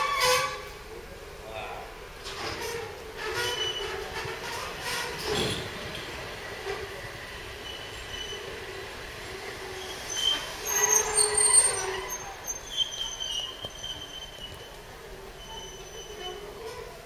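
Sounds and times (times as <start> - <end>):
train rumbling: 0.0 - 17.0
high-pitched wheel squeals: 2.6 - 5.6, 7.6 - 8.6, 9.7 - 17.0.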